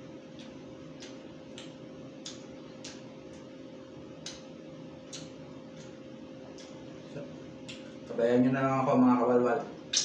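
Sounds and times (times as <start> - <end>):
steady low hum: 0.0 - 10.0
mouth clicks and lip smacks chewing: 0.3 - 3.5, 4.2 - 6.8.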